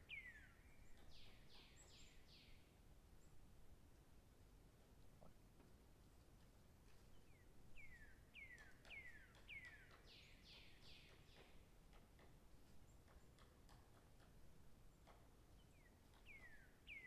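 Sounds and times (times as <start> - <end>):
bird whistling song: 0.0 - 2.6, 7.8 - 11.5, 15.7 - 17.0.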